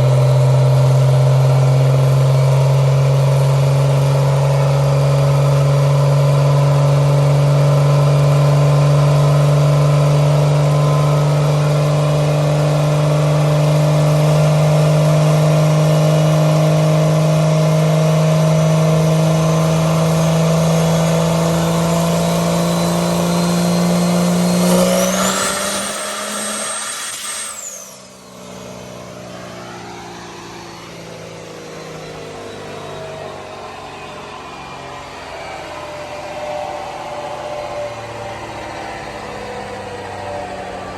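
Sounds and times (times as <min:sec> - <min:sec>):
truck engine revving: 0:00.0 - 0:40.9
high whistle: 0:20.7 - 0:28.4, 0:31.4 - 0:39.5.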